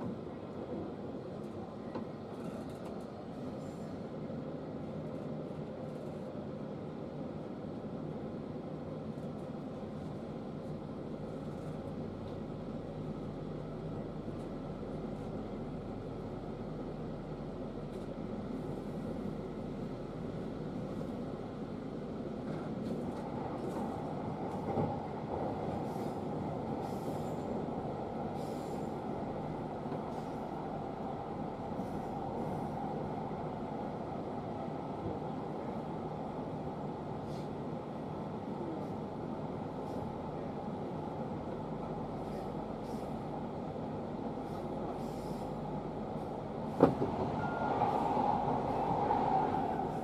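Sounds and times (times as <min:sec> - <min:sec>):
train wheels rumbling on rails: 0:17.8 - 0:36.0, 0:36.8 - 0:50.0
train rushing past: 0:46.7 - 0:50.0.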